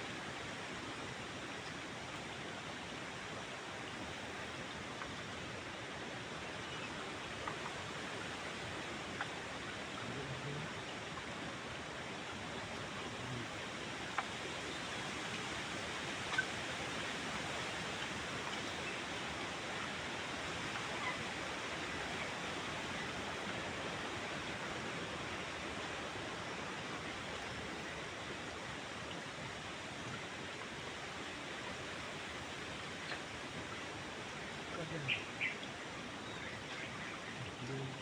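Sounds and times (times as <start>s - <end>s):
stream water rushing: 0.0s - 38.0s.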